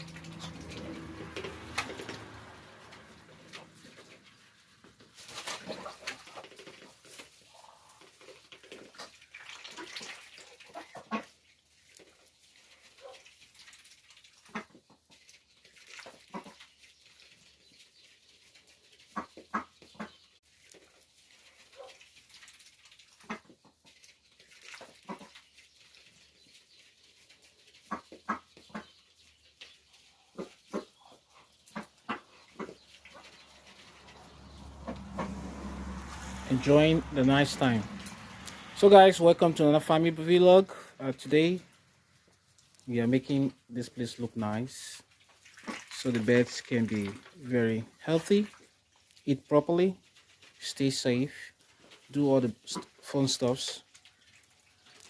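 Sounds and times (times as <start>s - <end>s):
animal calls: 30.2s - 37.1s.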